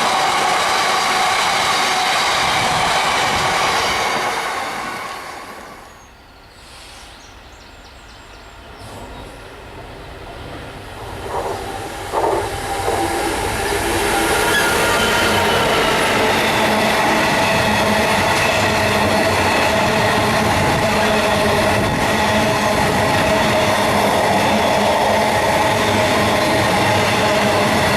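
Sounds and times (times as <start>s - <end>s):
train passing: 0.0s - 27.9s.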